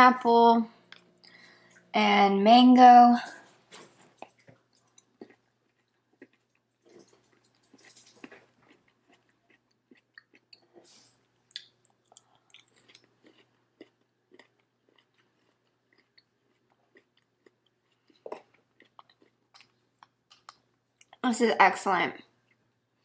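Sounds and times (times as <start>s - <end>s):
chewing with wet smacks: 4.2s - 21.2s, 22.1s - 23.0s.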